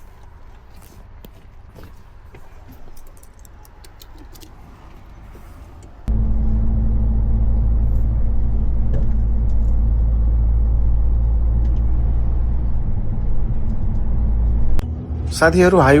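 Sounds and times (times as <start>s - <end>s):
road and tyre rumble: 0.0s - 16.0s
truck engine drone: 6.0s - 16.0s.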